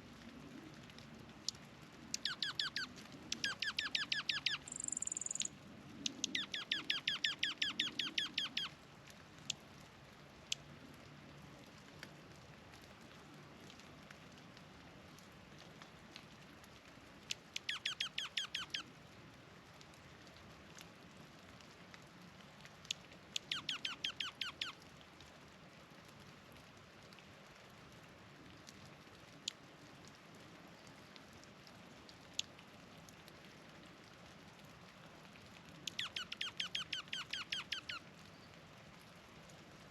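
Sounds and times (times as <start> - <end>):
songbird trilling: 2.1 - 8.7, 17.6 - 18.8, 23.4 - 24.7, 35.9 - 38.0.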